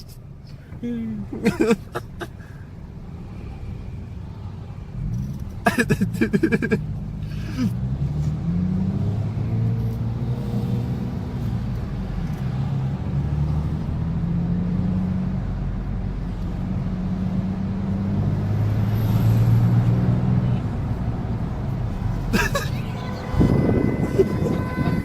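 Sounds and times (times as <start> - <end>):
vehicle engine idling: 20.4 - 25.0.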